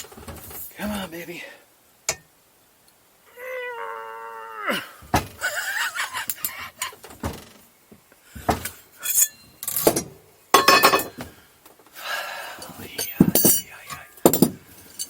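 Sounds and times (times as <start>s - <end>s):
metallic clanks and knocks: 8.4s - 11.2s.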